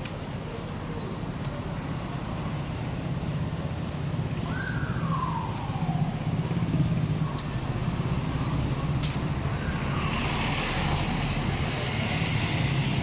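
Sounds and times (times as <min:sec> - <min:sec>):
vehicles passing: 0:00.0 - 0:13.0.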